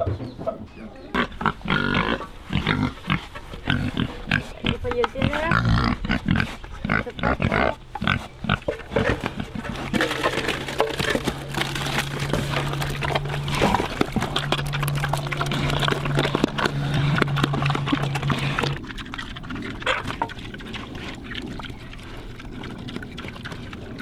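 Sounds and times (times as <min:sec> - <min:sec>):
pigs grunting and eating: 0:00.0 - 0:24.0
low hum: 0:05.4 - 0:24.0.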